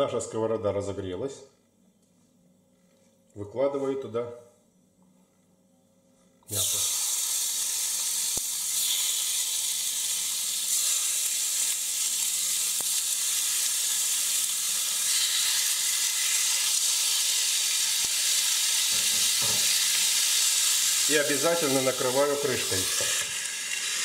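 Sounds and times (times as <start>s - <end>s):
chicken sizzling in a frying pan: 6.5s - 24.0s.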